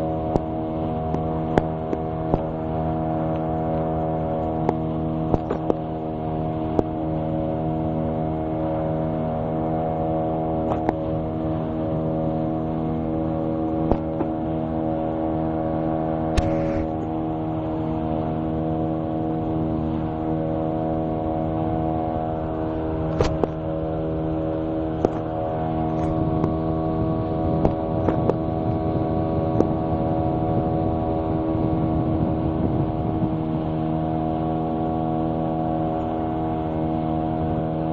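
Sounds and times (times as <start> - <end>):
boat engine running: 0.0 - 37.9.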